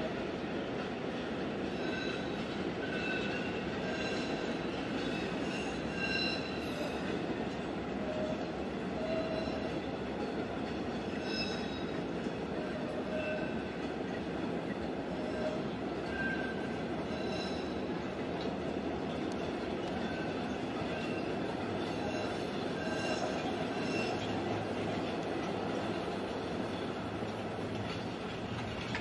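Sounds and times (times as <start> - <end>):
train rumbling on rails: 0.0 - 29.0
high wheel squeals: 1.6 - 7.2, 9.0 - 9.9, 11.1 - 12.1, 15.1 - 18.0, 20.0 - 24.6.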